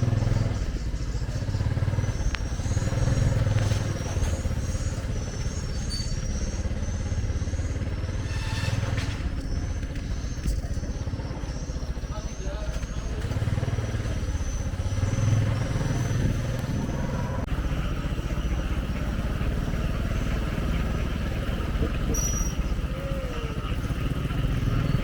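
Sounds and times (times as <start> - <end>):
vehicle engines passing: 0.0 - 25.0
short high chirps or squeaks: 3.1 - 10.6, 22.1 - 22.8.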